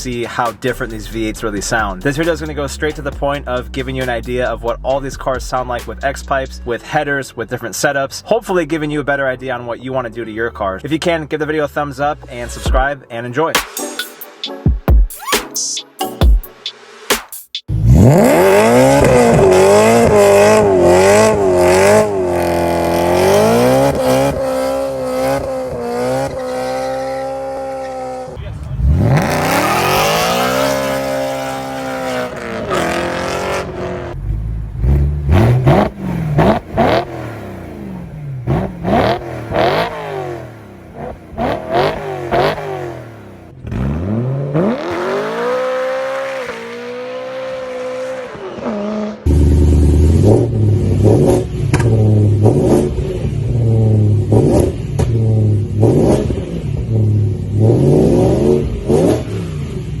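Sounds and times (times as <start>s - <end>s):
car engine revving: 17.7s - 60.0s.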